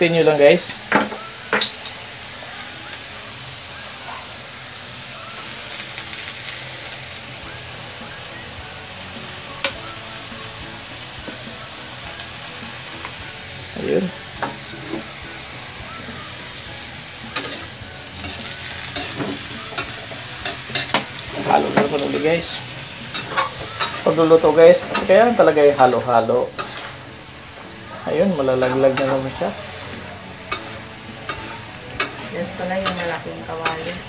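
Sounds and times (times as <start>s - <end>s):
food sizzling in a wok: 0.0s - 34.0s
spatula scraping a wok: 16.1s - 34.0s.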